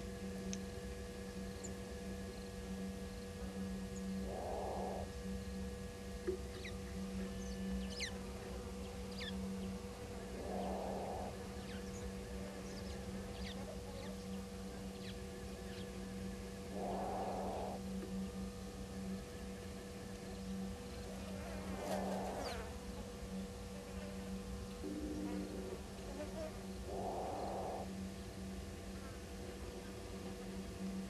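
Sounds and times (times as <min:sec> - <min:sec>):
electrical hum: 0:00.0 - 0:31.0
animal rasping call: 0:04.2 - 0:05.1, 0:10.3 - 0:11.8, 0:16.7 - 0:17.8, 0:21.5 - 0:22.7, 0:26.1 - 0:27.9
small birds chirping: 0:06.5 - 0:08.2, 0:08.8 - 0:16.0, 0:16.7 - 0:18.4, 0:20.1 - 0:23.4, 0:24.7 - 0:28.5.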